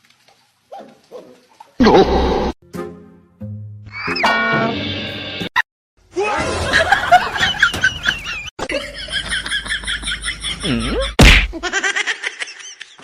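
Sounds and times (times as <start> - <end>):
people laughing: 6.2 - 13.0.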